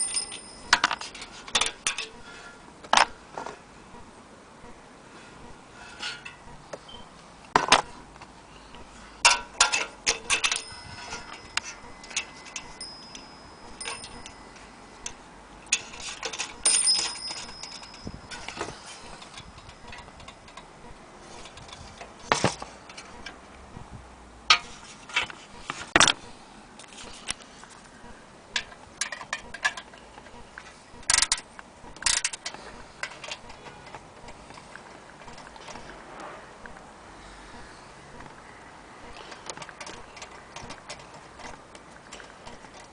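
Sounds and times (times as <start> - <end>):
faint high metallic ring: 0.0 - 2.2, 10.1 - 15.2, 15.8 - 20.4.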